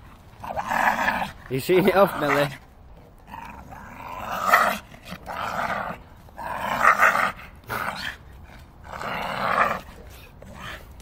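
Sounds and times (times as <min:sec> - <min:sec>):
dog growling: 0:00.4 - 0:08.2.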